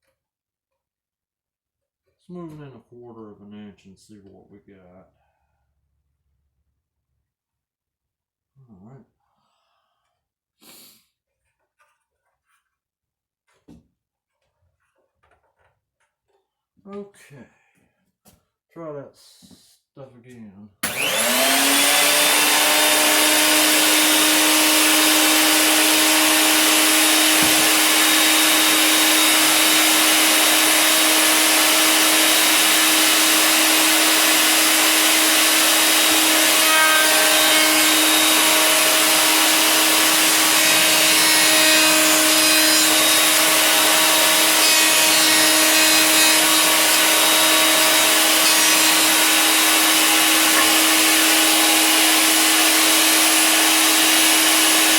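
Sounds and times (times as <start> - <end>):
router motor whine: 20.8 - 54.9.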